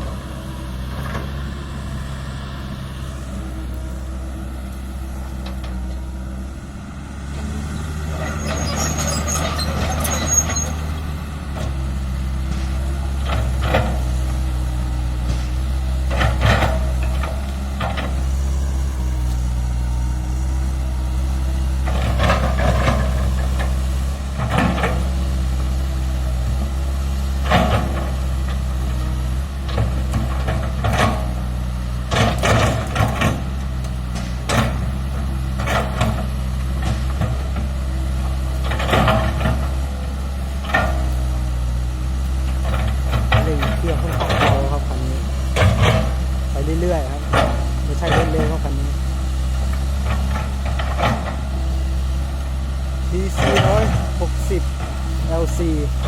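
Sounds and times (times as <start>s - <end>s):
excavator diesel engine running: 0.0s - 56.0s
excavator bucket clanking: 29.2s - 41.4s, 42.4s - 56.0s.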